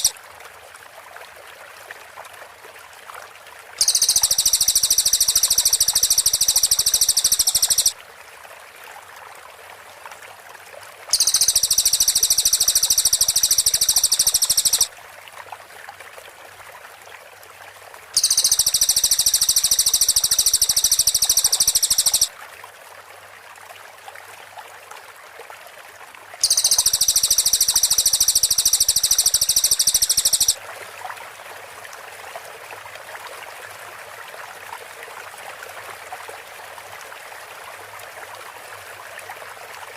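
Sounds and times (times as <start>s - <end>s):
running water: 0.0s - 39.9s
insects buzzing: 3.8s - 7.9s, 11.1s - 14.9s, 18.2s - 22.3s, 26.4s - 30.6s
songbird fast high trills: 3.8s - 8.0s, 11.1s - 14.9s, 18.2s - 22.3s, 26.4s - 30.6s.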